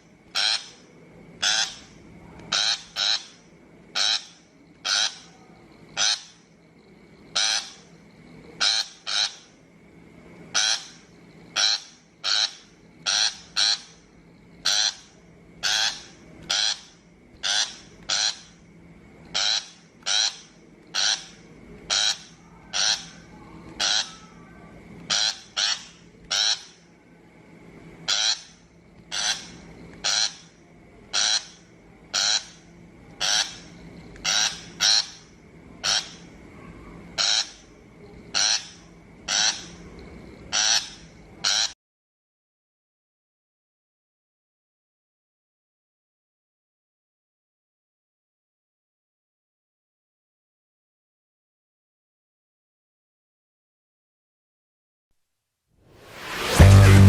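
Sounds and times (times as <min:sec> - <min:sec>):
shrike calls from speaker: 0:00.3 - 0:00.8, 0:02.5 - 0:03.4, 0:04.0 - 0:05.3, 0:06.0 - 0:06.4, 0:08.6 - 0:09.4, 0:10.5 - 0:11.0, 0:11.6 - 0:14.0, 0:14.6 - 0:18.5, 0:19.4 - 0:20.4, 0:21.0 - 0:26.8, 0:28.1 - 0:28.5, 0:31.1 - 0:32.6, 0:33.2 - 0:33.6, 0:34.2 - 0:35.2, 0:37.2 - 0:37.6, 0:38.4 - 0:38.7, 0:39.3 - 0:39.8, 0:40.5 - 0:41.8.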